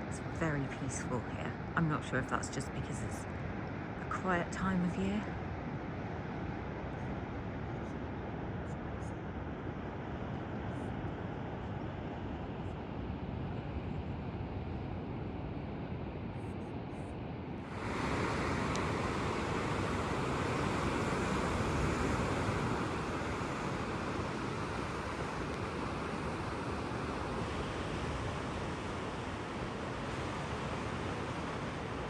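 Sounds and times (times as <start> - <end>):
rumble of wind and water: 0.0 - 32.0
sea surf washing on shore: 17.6 - 32.0.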